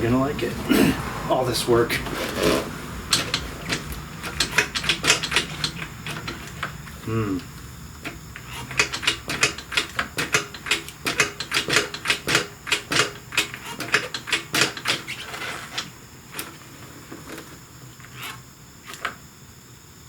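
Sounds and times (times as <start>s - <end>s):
hand tools clicking on metal: 2.4s - 6.7s, 8.0s - 15.9s.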